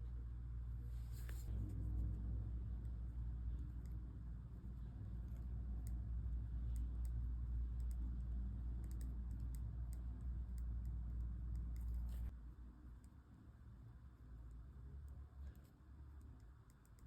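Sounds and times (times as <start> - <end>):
low steady rumble: 0.0 - 17.0
pen ticking and tapping on paper: 2.8 - 12.3, 14.2 - 17.0.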